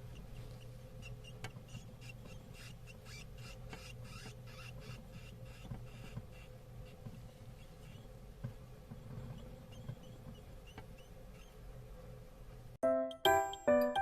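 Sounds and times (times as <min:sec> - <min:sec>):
hamster pups squeaking: 0:00.0 - 0:08.2, 0:09.0 - 0:11.6.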